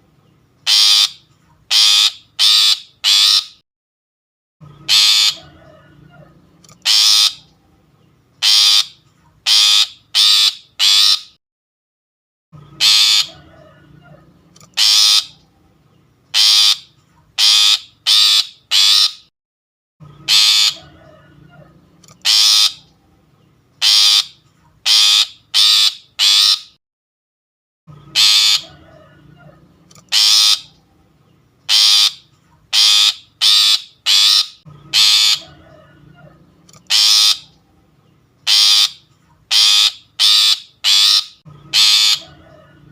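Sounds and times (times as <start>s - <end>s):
shrike harsh calls: 0.6s - 3.6s, 4.8s - 7.5s, 8.4s - 11.4s, 12.8s - 15.5s, 16.3s - 19.3s, 20.2s - 21.0s, 22.2s - 23.0s, 23.8s - 26.8s, 28.1s - 29.5s, 30.1s - 30.8s, 31.7s - 37.7s, 38.4s - 42.6s.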